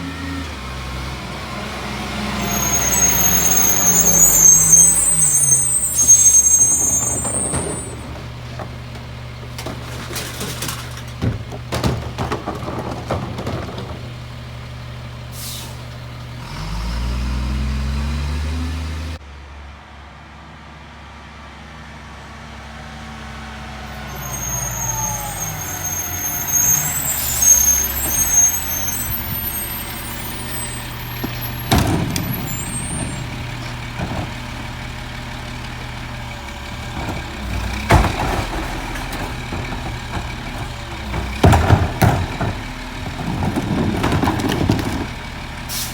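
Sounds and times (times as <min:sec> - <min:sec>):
garbage truck diesel engine: 0:00.0 - 0:19.3, 0:20.1 - 0:45.9
high squeal: 0:02.2 - 0:08.2, 0:23.9 - 0:34.5.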